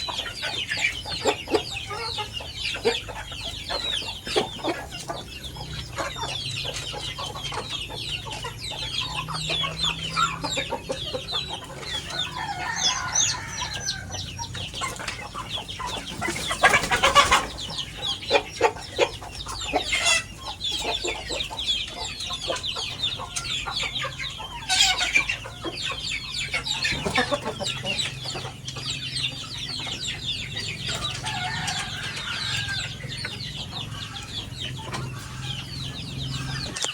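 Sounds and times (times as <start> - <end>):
chickens cheeping and clucking: 0.0 - 36.9.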